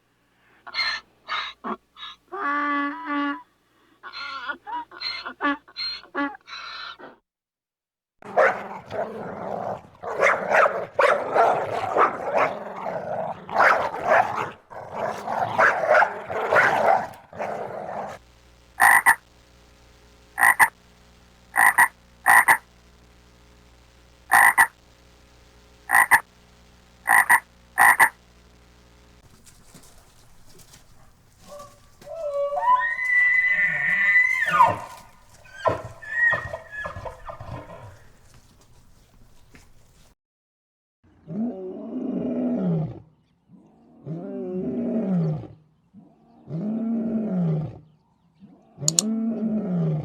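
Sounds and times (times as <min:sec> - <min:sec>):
rough rasping animal calls: 0:00.6 - 0:03.4, 0:04.0 - 0:07.2, 0:18.8 - 0:19.2, 0:20.4 - 0:20.8, 0:21.6 - 0:22.6, 0:24.3 - 0:24.7, 0:25.9 - 0:26.2, 0:27.1 - 0:28.2, 0:30.8 - 0:38.3
short animal calls: 0:00.6 - 0:03.4, 0:04.0 - 0:07.2, 0:18.8 - 0:19.2, 0:20.4 - 0:20.8, 0:21.6 - 0:22.6, 0:24.3 - 0:24.7, 0:25.9 - 0:26.2, 0:27.0 - 0:28.2.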